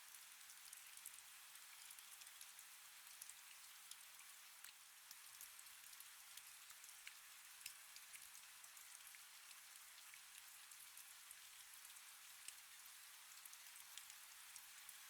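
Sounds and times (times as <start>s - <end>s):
faint rain falling: 0.0s - 15.0s.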